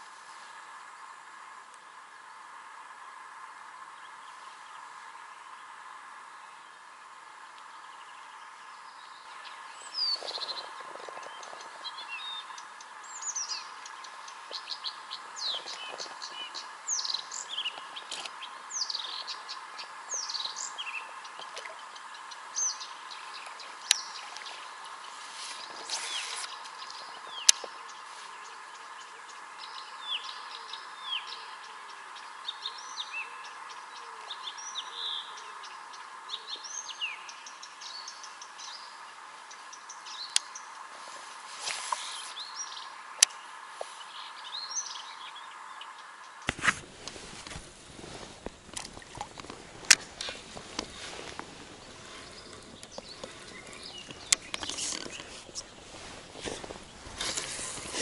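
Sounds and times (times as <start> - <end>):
songbirds chirping and whistling: 6.4 - 58.0.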